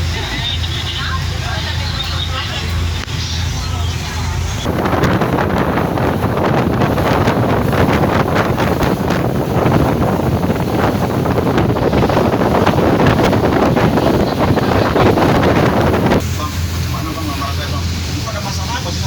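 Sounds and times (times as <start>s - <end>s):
boat underway: 0.0s - 19.0s
wind buffeting microphone: 0.0s - 19.0s.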